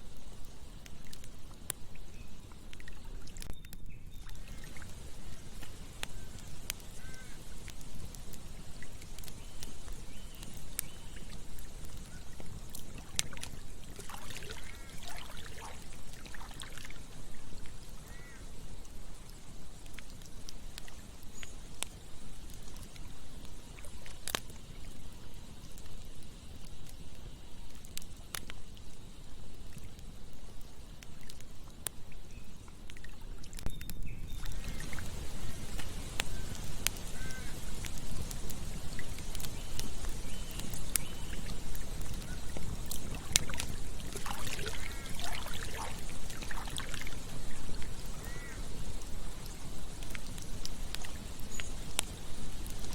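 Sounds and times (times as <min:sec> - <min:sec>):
campfire crackling and popping: 0:00.0 - 0:52.9
faint short bird calls: 0:06.1 - 0:07.6, 0:18.0 - 0:18.5, 0:33.7 - 0:37.8, 0:44.4 - 0:46.0, 0:48.2 - 0:48.8
river flowing: 0:11.5 - 0:18.3, 0:34.4 - 0:51.3.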